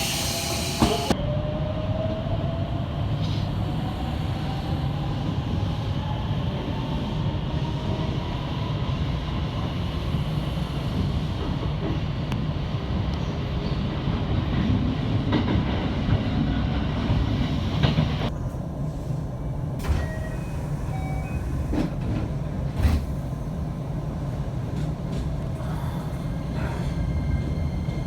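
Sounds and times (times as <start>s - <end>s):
air hiss: 0.0s - 1.2s
train running rumble: 0.0s - 1.2s, 6.5s - 28.0s.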